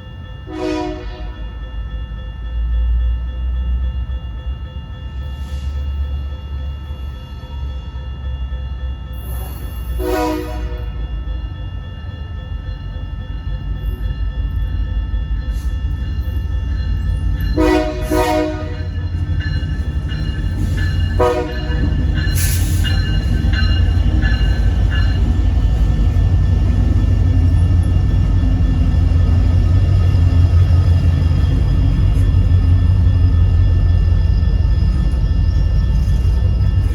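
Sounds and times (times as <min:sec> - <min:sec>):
train engine rumble: 0:00.0 - 0:36.9
locomotive air horn blasts: 0:00.5 - 0:01.4, 0:10.0 - 0:10.9, 0:17.6 - 0:18.9, 0:21.2 - 0:21.9.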